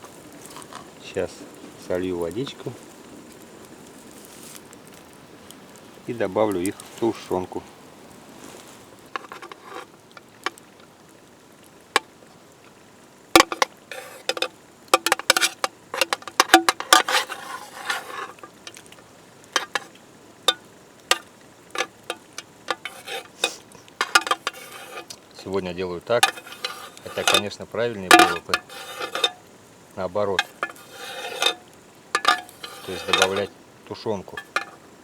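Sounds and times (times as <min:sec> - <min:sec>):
metal spoon clinking on cookware: 0:13.4 - 0:18.8, 0:19.6 - 0:19.9, 0:21.8 - 0:25.1, 0:26.2 - 0:29.4, 0:30.4 - 0:31.6, 0:32.2 - 0:33.5, 0:34.4 - 0:34.8.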